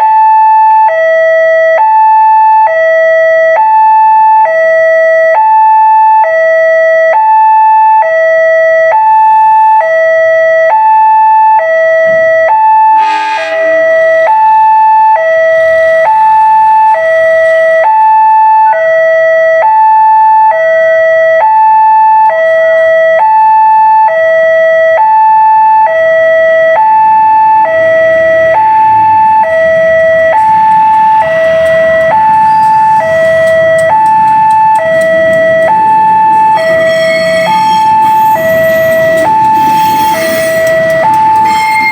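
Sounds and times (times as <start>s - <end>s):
two-tone crossing alarm: 0.0s - 41.9s
low rumble: 13.6s - 19.0s, 26.2s - 41.9s.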